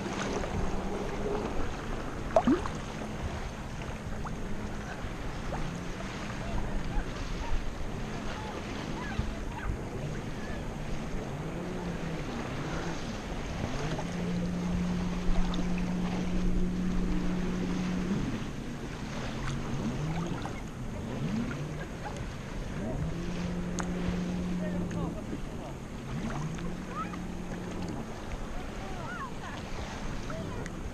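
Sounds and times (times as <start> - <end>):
low droning tone: 0.0 - 30.9
muffled underwater noise: 0.0 - 30.9.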